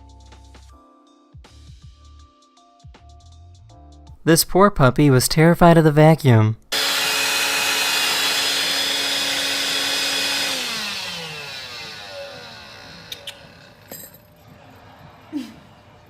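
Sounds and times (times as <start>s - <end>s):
vacuum cleaner running: 6.7s - 14.2s.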